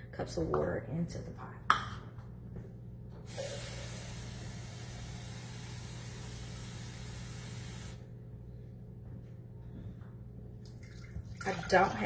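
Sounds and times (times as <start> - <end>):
water pouring into a pot: 10.8 - 12.0.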